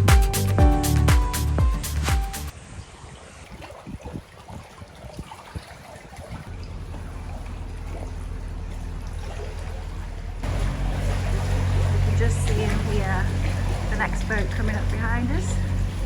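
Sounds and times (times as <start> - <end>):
water trickling and dripping: 3.0 - 16.0
boat motor running: 6.5 - 16.0.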